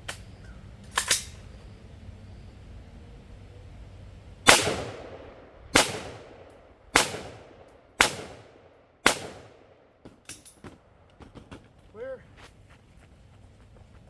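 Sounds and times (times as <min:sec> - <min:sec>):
gunshots with ringing echo: 0:04.4 - 0:09.9.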